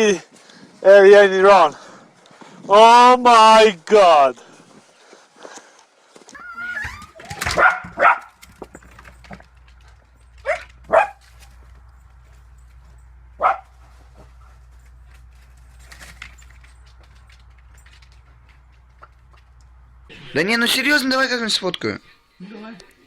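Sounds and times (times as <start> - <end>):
dog barking: 6.4 - 8.4, 10.4 - 11.4, 13.3 - 14.0.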